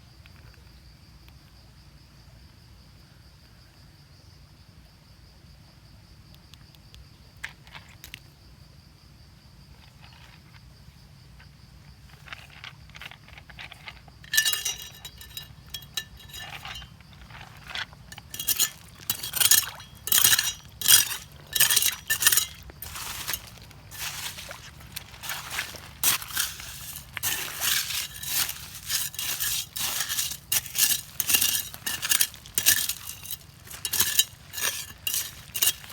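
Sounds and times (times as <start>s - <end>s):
stones clinking and scraping: 12.2s - 35.9s.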